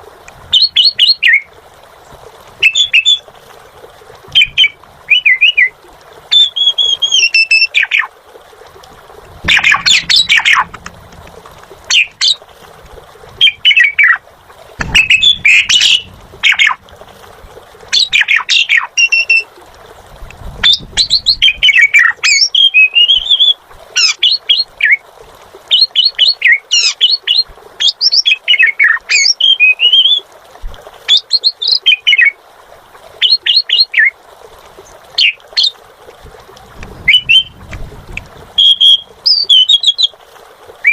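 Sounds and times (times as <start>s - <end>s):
starling singing: 4.4s - 8.1s, 9.4s - 10.9s, 11.9s - 12.4s, 13.4s - 14.2s, 14.8s - 16.8s, 17.9s - 19.4s, 38.6s - 40.2s.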